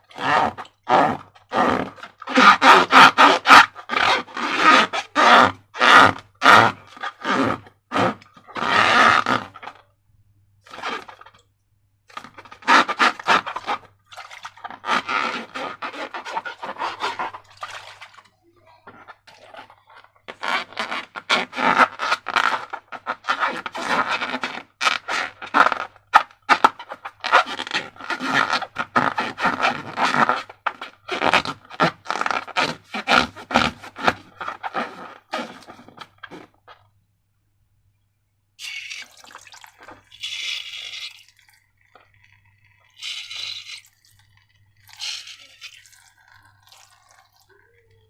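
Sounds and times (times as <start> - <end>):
sticky slime scraping and crackling: 12.1 - 18.2, 18.9 - 36.8, 44.8 - 47.2.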